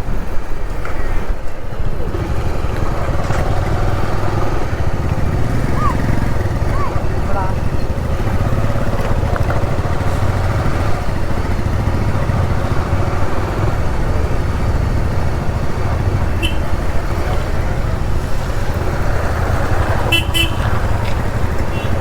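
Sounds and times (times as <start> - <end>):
motorcycle engine rumble: 0.0 - 22.0.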